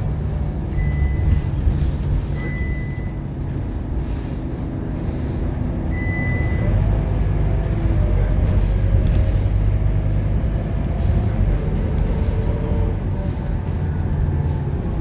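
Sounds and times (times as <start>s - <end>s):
bus diesel engine drone: 0.0s - 15.0s
short electronic beeps: 0.7s - 1.4s, 2.4s - 3.2s, 5.9s - 6.6s.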